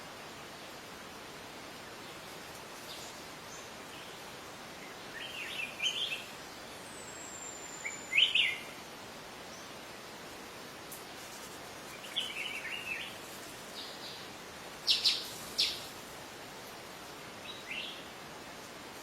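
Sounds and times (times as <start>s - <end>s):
steady background hiss: 0.0s - 19.0s
songbirds calling: 1.8s - 10.0s, 10.9s - 16.0s, 16.7s - 18.2s.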